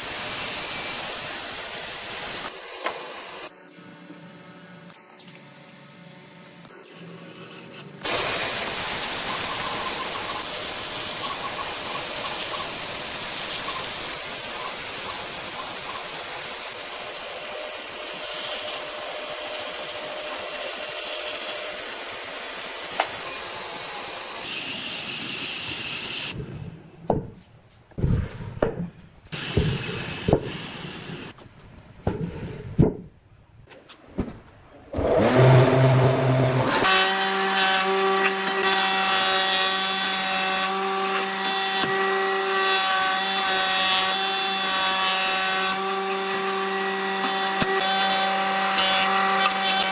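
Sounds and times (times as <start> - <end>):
power tool whining on wood: 35.0 - 49.9.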